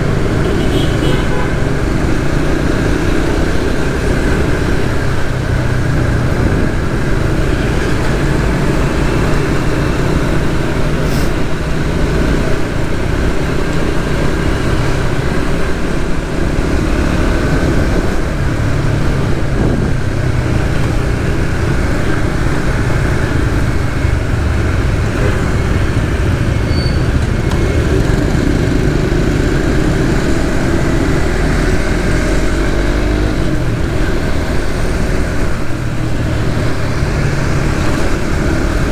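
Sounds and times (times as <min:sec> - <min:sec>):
motorcycle engine running: 0:00.0 - 0:38.9
passing traffic: 0:00.0 - 0:38.9
wind and road noise: 0:00.0 - 0:38.9.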